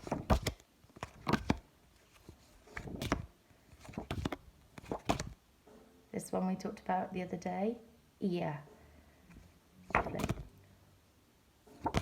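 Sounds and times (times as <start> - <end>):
paper flashcards rustling: 0.0 - 5.4, 9.3 - 10.5, 11.8 - 12.0.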